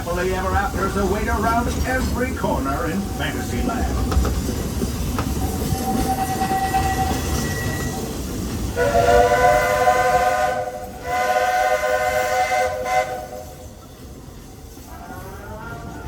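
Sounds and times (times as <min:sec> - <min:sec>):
steam locomotive running: 0:00.0 - 0:16.0
steam whistle blasts: 0:08.8 - 0:13.7.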